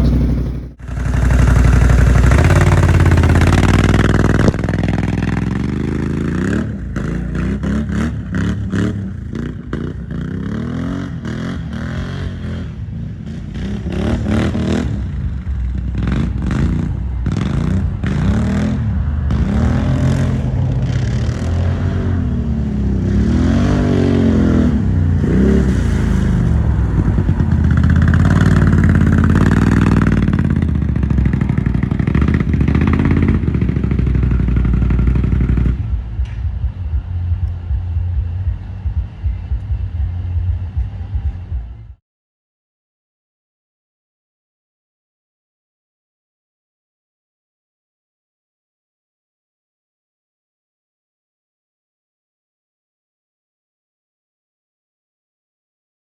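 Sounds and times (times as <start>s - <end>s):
engine revving: 0.0s - 42.0s.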